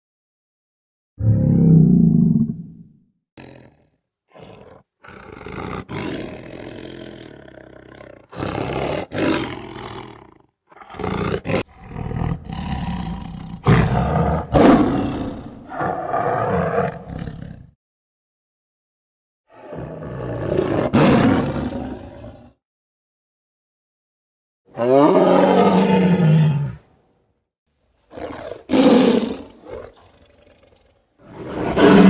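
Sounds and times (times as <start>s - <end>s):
big cat roaring and growling: 1.2s - 17.8s, 19.5s - 22.6s, 24.7s - 26.9s, 28.1s - 32.0s.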